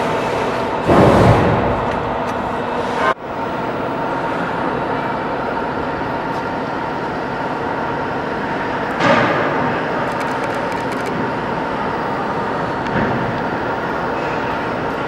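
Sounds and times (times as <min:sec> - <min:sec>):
steady mechanical noise with hum: 0:00.0 - 0:15.0.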